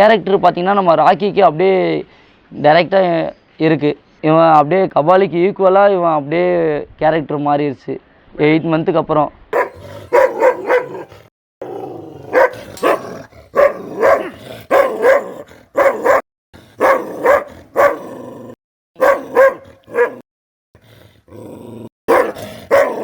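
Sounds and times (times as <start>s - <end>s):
dog barking: 9.6s - 16.2s, 16.8s - 18.2s, 19.0s - 20.2s, 22.1s - 23.0s.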